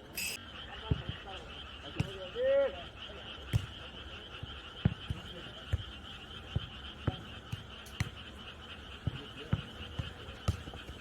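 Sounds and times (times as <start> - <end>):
frogs trilling: 0.0 - 11.0.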